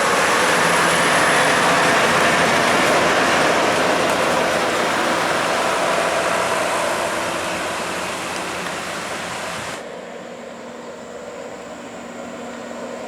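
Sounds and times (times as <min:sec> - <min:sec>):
heavy truck driving past: 0:00.0 - 0:09.8.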